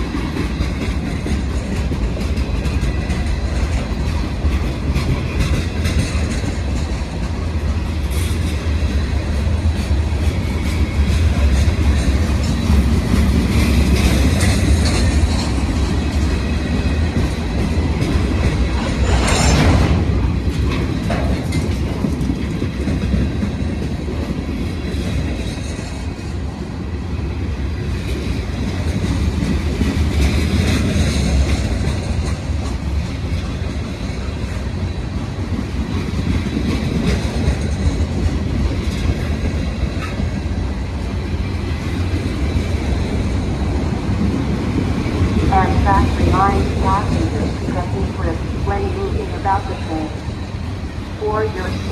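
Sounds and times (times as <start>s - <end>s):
clickety-clack over rail joints: 0.0s - 19.2s, 20.4s - 48.1s
train wheels rumbling on rails: 0.0s - 51.9s
rushing burst: 18.2s - 21.4s.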